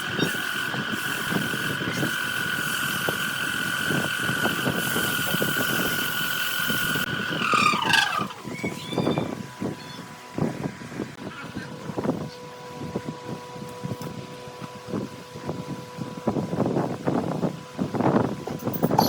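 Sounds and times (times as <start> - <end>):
wood lathe whining: 0.0 - 10.0.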